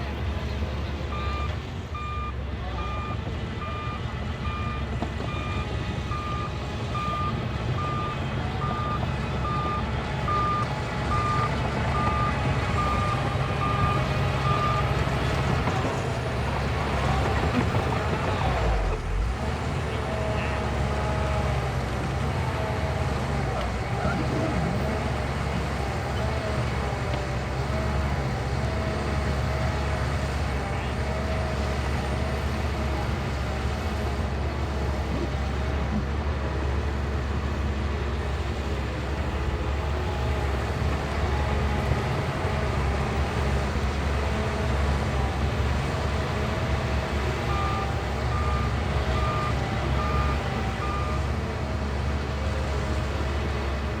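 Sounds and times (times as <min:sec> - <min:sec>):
bulldozer diesel engine running: 0:00.0 - 0:54.0
reversing alarm beeping: 0:01.1 - 0:15.0.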